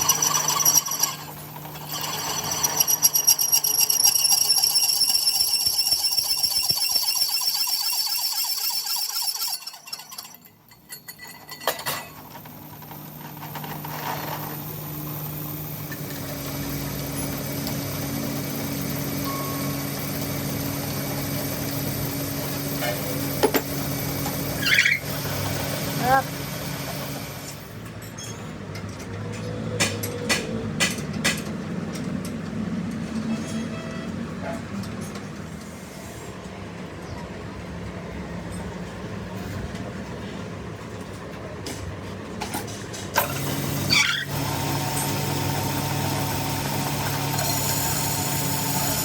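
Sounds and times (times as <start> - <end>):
machine tool squealing on metal: 0.0 - 11.6, 23.9 - 26.3, 28.2 - 28.5, 43.2 - 49.0
motor humming: 43.2 - 49.0.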